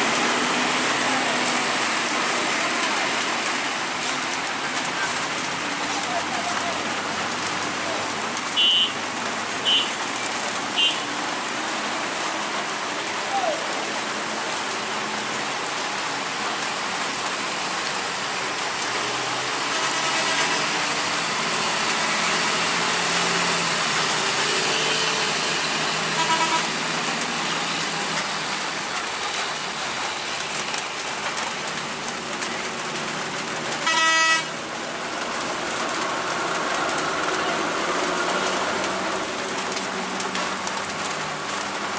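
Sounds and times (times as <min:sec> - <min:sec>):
heavy rain: 0:00.0 - 0:41.9
traffic running: 0:00.0 - 0:41.9
vehicle horns honking: 0:08.6 - 0:09.0, 0:09.6 - 0:10.0, 0:10.8 - 0:11.1, 0:26.2 - 0:26.7, 0:33.8 - 0:34.5.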